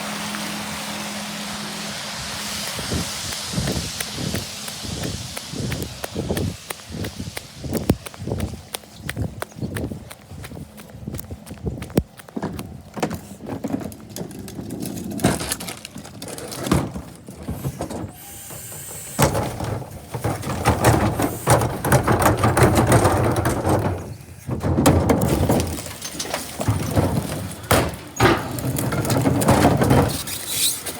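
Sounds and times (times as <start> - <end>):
air hiss: 0.0 - 8.2, 18.1 - 19.4
garbage truck clatter: 12.3 - 30.9.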